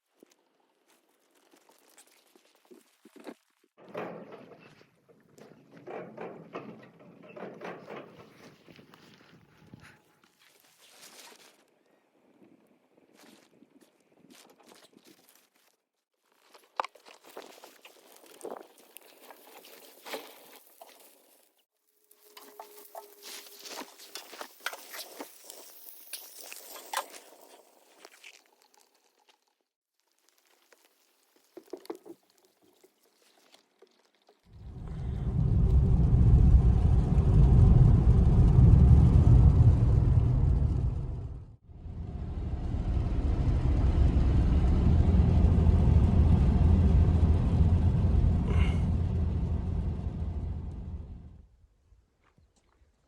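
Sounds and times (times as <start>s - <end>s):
low rumble: 34.5s - 51.5s.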